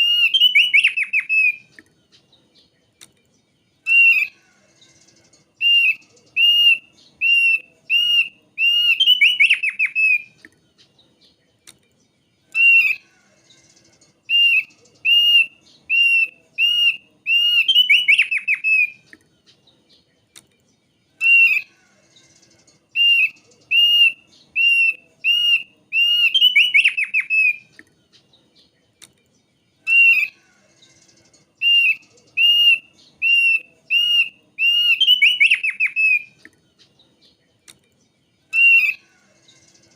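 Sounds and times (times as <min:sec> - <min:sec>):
bird whistled notes: 0:00.0 - 0:01.7, 0:05.6 - 0:10.3, 0:14.3 - 0:19.0, 0:23.0 - 0:27.6, 0:31.6 - 0:36.4, 0:38.5 - 0:39.0.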